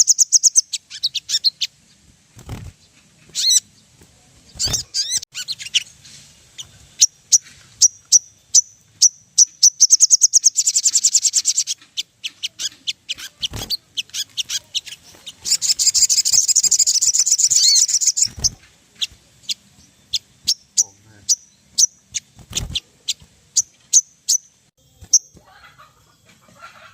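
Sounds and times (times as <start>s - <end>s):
sunbird chips and trills: 0.0s - 26.9s.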